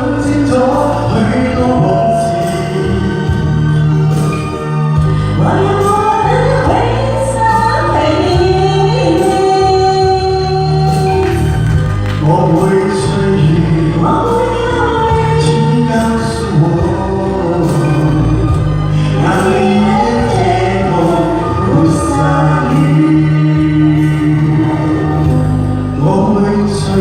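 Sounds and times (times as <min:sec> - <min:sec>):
backing music with bass line: 0:00.0 - 0:27.0
person singing long held notes: 0:12.2 - 0:27.0.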